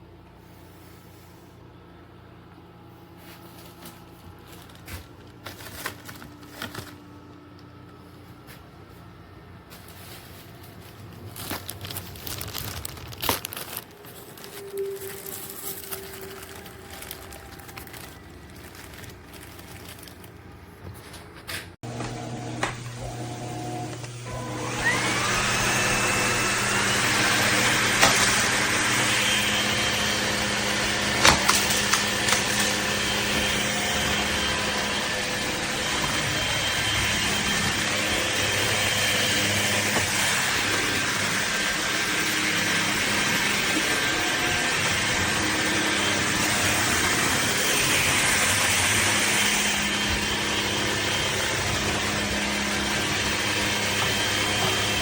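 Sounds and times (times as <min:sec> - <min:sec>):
vacuum motor whining: 0:11.1 - 0:21.0, 0:21.8 - 0:55.0.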